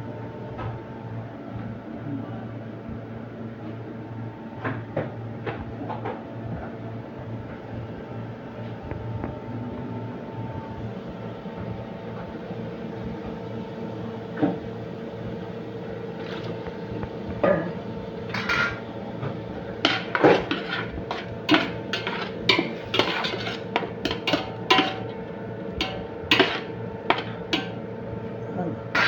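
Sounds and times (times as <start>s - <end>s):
steady hum: 6.4s - 29.0s
metal utensil clanking in a pan: 18.3s - 18.8s, 19.8s - 25.2s, 25.8s - 27.8s.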